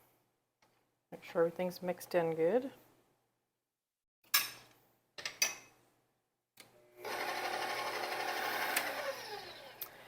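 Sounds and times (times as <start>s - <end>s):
electric mixer motor running: 7.0s - 10.0s.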